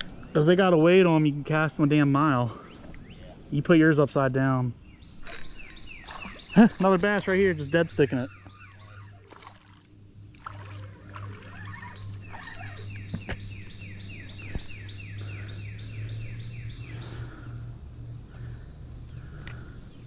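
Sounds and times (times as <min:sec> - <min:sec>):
songbird singing: 0:00.0 - 0:20.0
steady low hum: 0:00.0 - 0:20.0.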